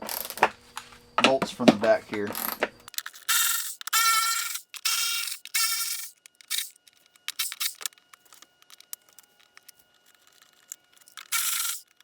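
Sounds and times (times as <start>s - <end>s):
metal tools clicking and scraping: 2.2s - 12.0s
socket ratchet clicking: 2.3s - 8.0s, 10.6s - 12.0s.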